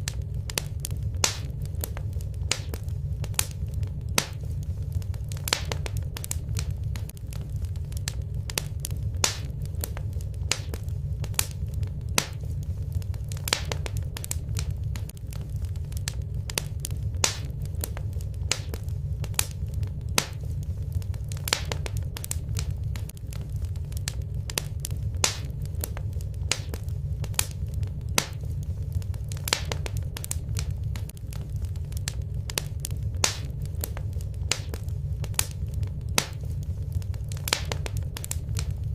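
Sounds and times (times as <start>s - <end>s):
fire crackling and popping: 0.0s - 38.9s
low rumble: 0.0s - 38.9s.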